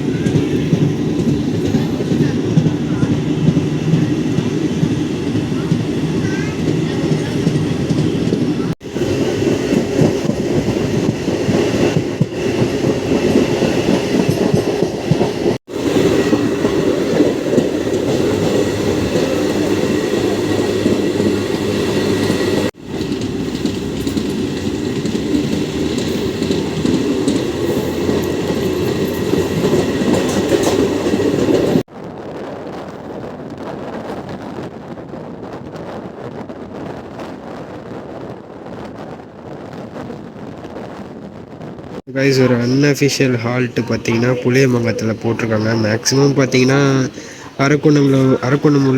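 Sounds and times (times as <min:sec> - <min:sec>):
train wheels rumbling on rails: 0:00.0 - 0:48.9.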